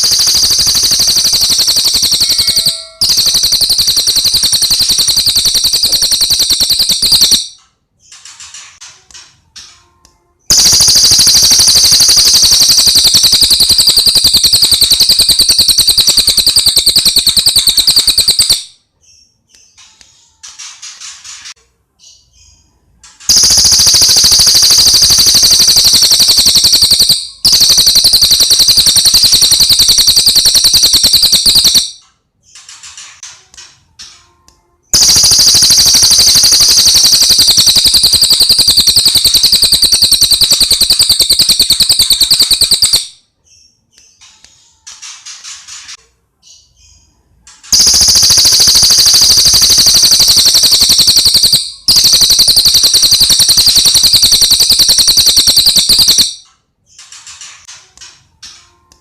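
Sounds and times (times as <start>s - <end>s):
bird trills: 0.0s - 7.6s.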